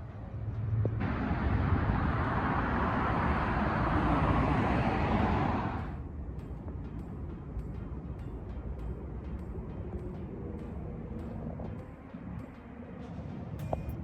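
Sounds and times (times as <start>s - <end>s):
vehicle passing close by: 0.4s - 6.0s.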